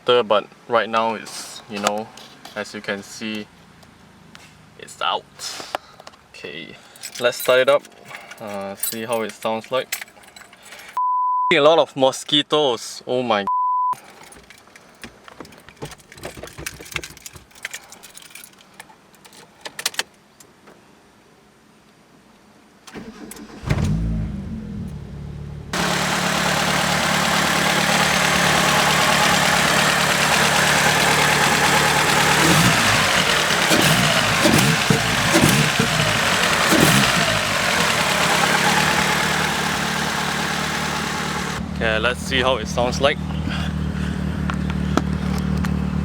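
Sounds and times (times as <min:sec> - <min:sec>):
car keys jangling: 0:06.9 - 0:11.0, 0:14.0 - 0:20.1, 0:29.0 - 0:39.5
car engine revving and idling: 0:23.4 - 0:46.0.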